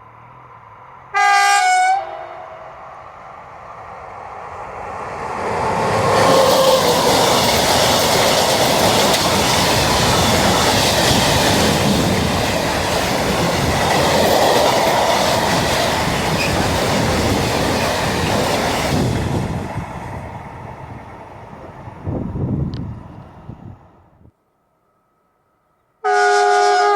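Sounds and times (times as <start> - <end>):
train wheels clattering on rails: 5.2 - 20.4.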